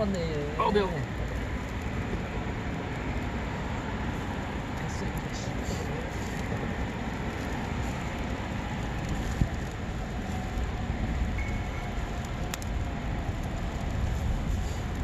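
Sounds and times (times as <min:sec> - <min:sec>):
campfire crackling: 0:00.0 - 0:15.0
fire pops: 0:01.0 - 0:15.0
wind on microphone: 0:06.4 - 0:15.0.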